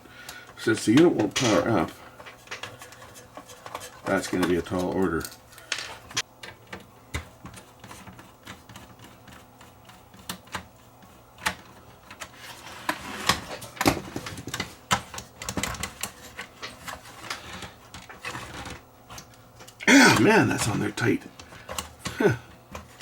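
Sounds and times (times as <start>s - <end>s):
tools clicking and scraping on casing: 0.3s - 9.3s.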